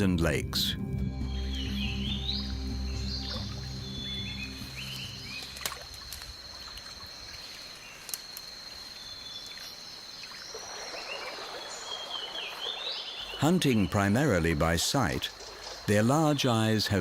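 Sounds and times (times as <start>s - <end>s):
background music: 0.0s - 5.6s
high insect drone: 1.0s - 17.0s
water trickling: 1.2s - 17.0s.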